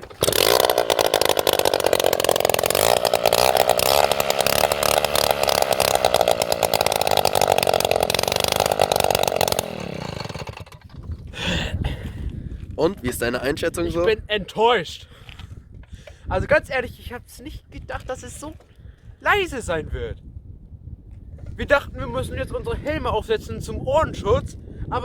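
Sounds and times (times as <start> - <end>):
two-stroke moped engine running: 0.0 - 11.2.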